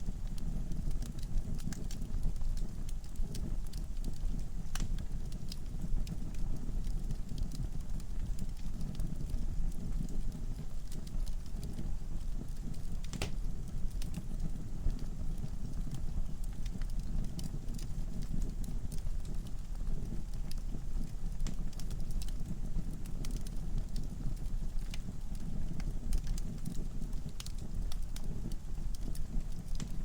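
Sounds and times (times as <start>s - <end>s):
fire flames rumbling: 0.0s - 30.0s
logs crackling and popping: 0.0s - 30.0s.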